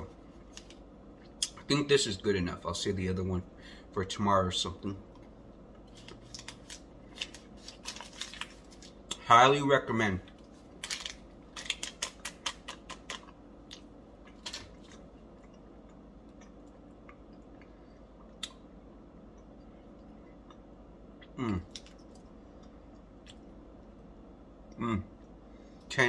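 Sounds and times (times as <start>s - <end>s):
person humming mmm: 21.2s - 21.8s, 24.8s - 25.1s.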